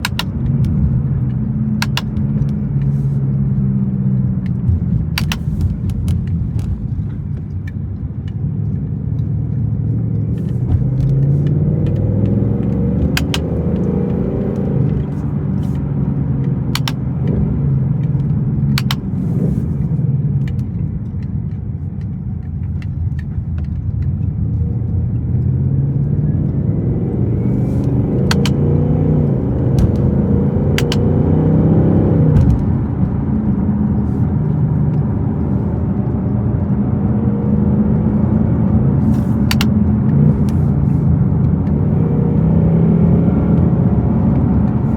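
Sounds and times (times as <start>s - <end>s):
car engine shifting gears: 0.0s - 44.9s
paddle shifter clicks: 16.7s - 17.1s, 27.8s - 28.7s.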